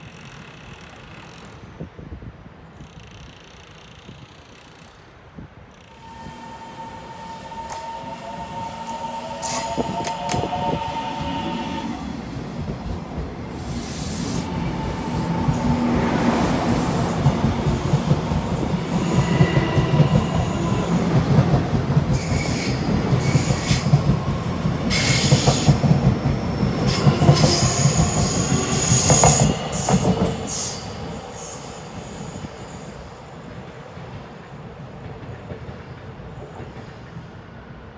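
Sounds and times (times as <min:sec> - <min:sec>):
train rumble: 0:00.0 - 0:37.9
train wheel squeal: 0:05.7 - 0:12.0, 0:18.8 - 0:21.2, 0:22.1 - 0:33.1.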